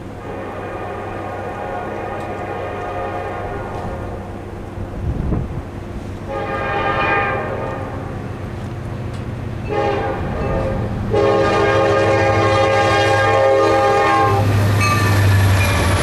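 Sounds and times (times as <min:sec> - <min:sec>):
locomotive engine drone: 0:00.0 - 0:16.0
locomotive air horn blasts: 0:00.2 - 0:04.4, 0:06.2 - 0:08.2, 0:09.7 - 0:15.6.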